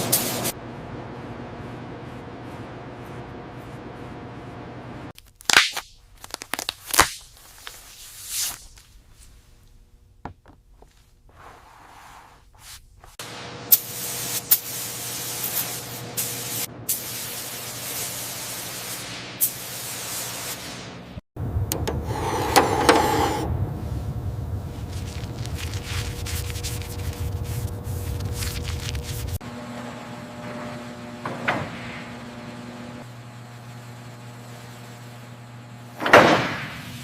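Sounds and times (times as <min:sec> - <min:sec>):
spray paint hissing: 0:13.7 - 0:20.7.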